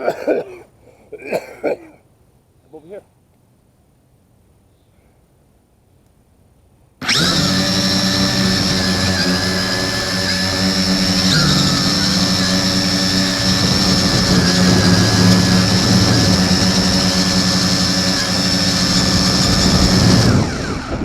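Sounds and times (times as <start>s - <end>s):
drone motors whining: 7.0s - 21.0s.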